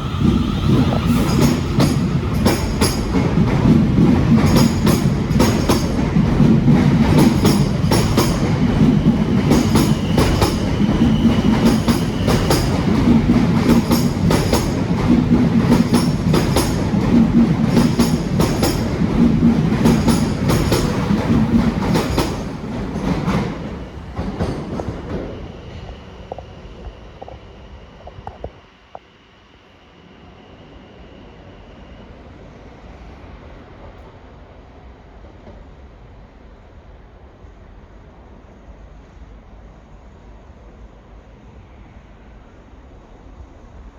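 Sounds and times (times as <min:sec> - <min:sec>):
train low hum: 0:00.0 - 0:43.9
train wheels clicking over rail joints: 0:00.2 - 0:25.5.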